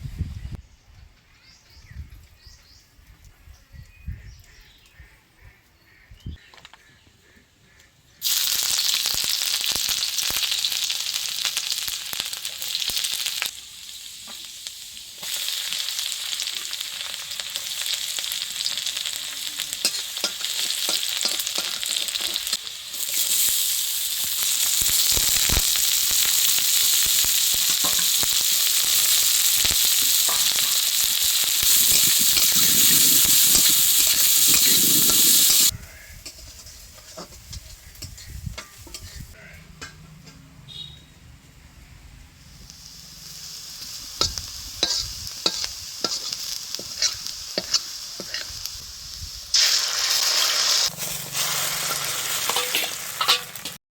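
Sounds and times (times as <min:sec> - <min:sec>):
food sizzling in oil: 0:08.2 - 0:39.4, 0:42.4 - 0:53.8
spatula scraping pan: 0:27.6 - 0:40.4, 0:44.2 - 0:48.7, 0:50.8 - 0:53.8.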